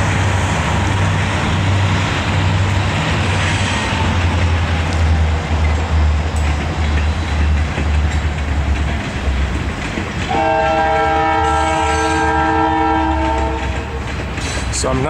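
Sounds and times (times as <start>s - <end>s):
freight train rumble: 0.0s - 15.0s
locomotive air horn chord: 10.3s - 13.8s.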